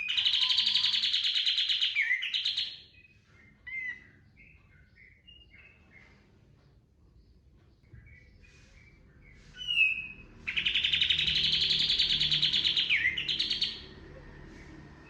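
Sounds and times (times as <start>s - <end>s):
bird rapid trill: 0.0s - 2.9s, 9.6s - 14.0s
bird chirps: 0.0s - 15.0s.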